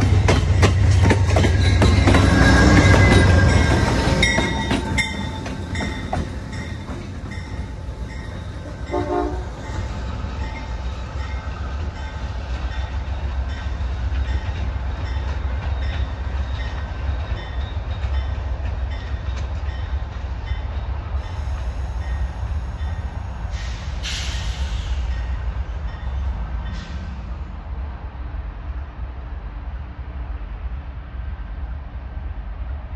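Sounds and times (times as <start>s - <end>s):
train rumbling on track: 0.0s - 32.9s
train horn note: 8.8s - 9.7s
rush of hiss: 21.2s - 25.4s.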